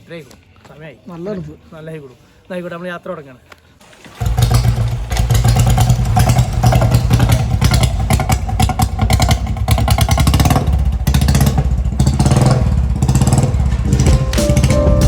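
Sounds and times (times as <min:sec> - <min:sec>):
motorcycle engine thumping: 0:04.4 - 0:15.0.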